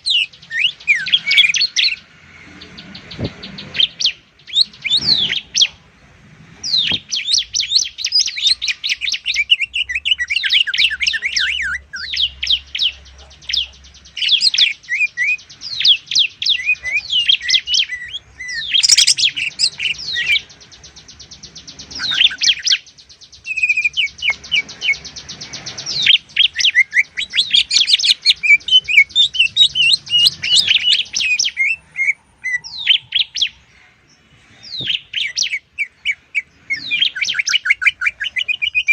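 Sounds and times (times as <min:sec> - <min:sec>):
birds chirping: 0:00.0 - 0:38.9
rapid buzzing bird trill: 0:06.6 - 0:33.6.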